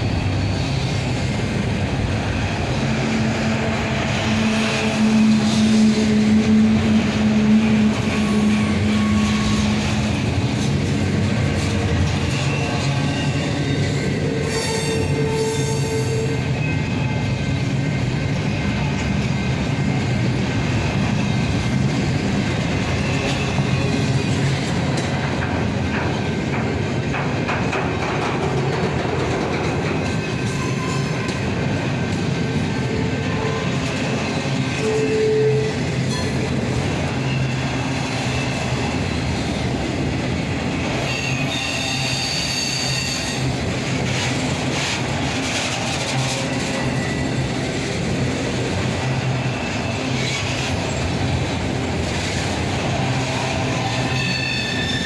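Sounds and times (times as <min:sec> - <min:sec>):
freight train wheels rumbling: 0:00.0 - 0:55.0
wheel squeals: 0:53.1 - 0:55.0.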